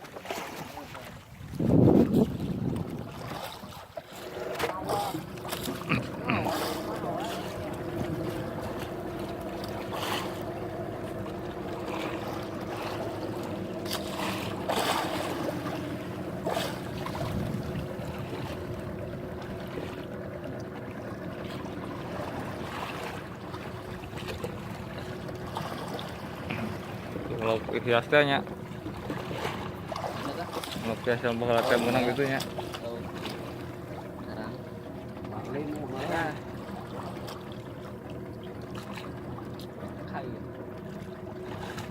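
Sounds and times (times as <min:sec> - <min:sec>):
boat engine running: 0:00.0 - 0:41.9
water: 0:00.0 - 0:41.9
wind noise: 0:01.4 - 0:03.3, 0:17.1 - 0:18.2.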